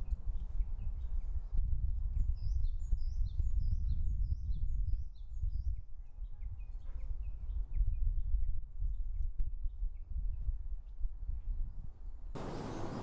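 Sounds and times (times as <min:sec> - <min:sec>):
songbird chirping: 0:12.4 - 0:13.0.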